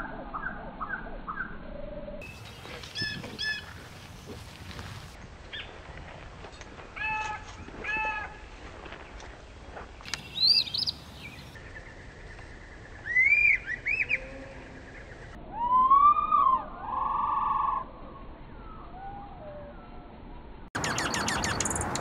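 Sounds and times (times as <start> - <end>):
slowed whistled bird notes: 0.0 - 3.6, 10.1 - 20.2, 20.8 - 22.0
slowed harsh jay calls: 20.8 - 22.0.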